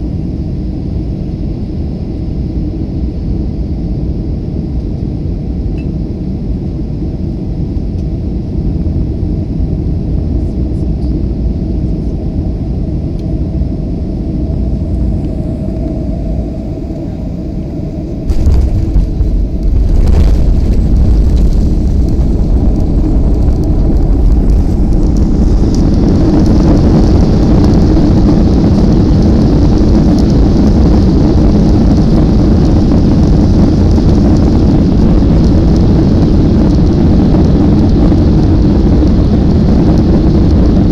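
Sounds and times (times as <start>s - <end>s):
airliner cabin rumble: 0.0s - 40.9s
jet engine noise with hiss: 0.0s - 40.9s.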